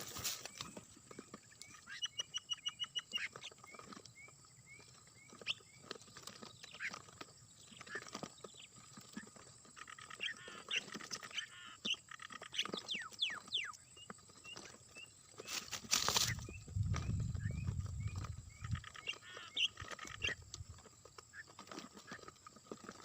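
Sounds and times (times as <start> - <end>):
birds chirping and whistling: 0.0 - 22.3
bird rattling trill: 15.4 - 23.0.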